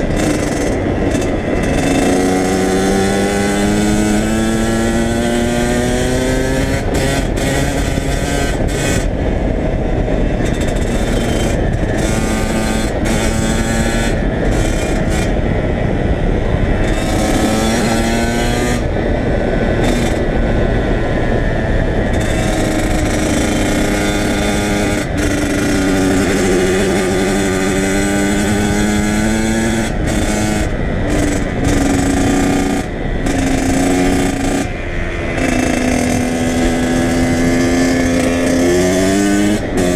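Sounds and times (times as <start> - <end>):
dirt bike engine revving: 0.0 - 39.9
low wind rumble: 0.0 - 39.9.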